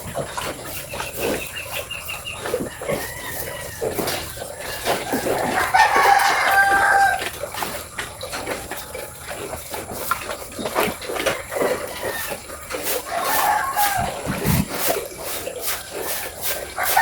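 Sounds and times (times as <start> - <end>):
rooster crowing: 2.6 - 7.3, 13.0 - 14.6, 16.1 - 17.0.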